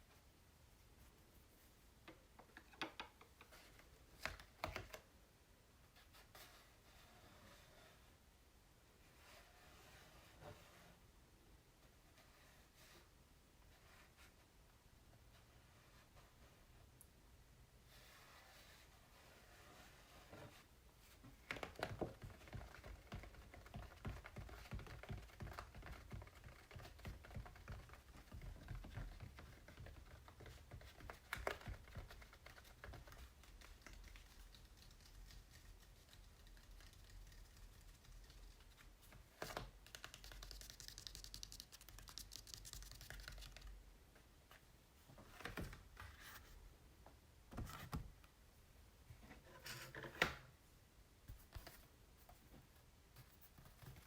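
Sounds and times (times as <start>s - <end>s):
scratchy rubbing: 39.8s - 43.6s.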